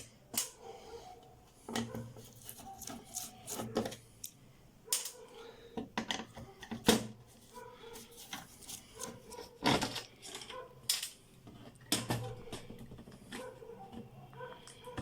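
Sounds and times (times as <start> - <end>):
scraping and rubbing on circuit board: 1.9 - 4.1, 7.3 - 9.6.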